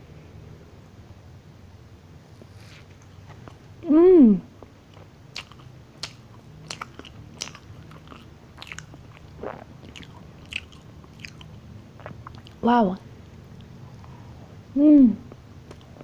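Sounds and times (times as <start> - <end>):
chewing with wet mouth clicks: 4.9 - 12.6.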